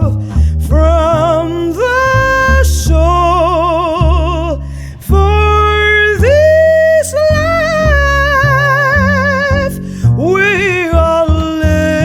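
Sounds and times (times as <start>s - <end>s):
bass line: 0.0s - 12.0s.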